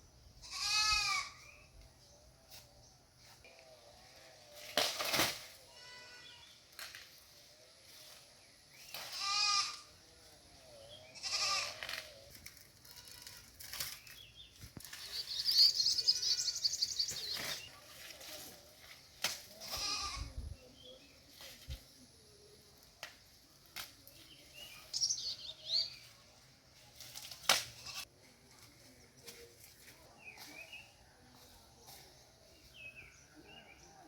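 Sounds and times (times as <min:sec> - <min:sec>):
goats bleating: 0:19.6 - 0:20.3.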